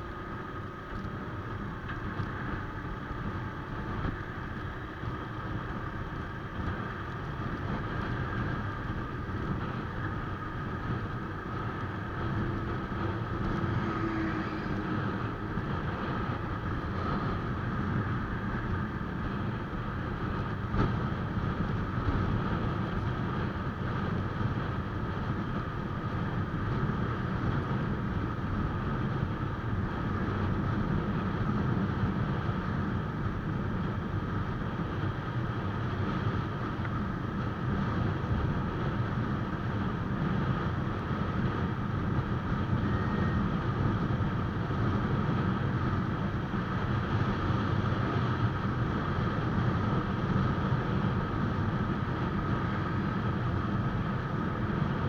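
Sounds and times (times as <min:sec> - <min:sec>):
wind and motorcycle road noise: 0:00.0 - 0:55.0.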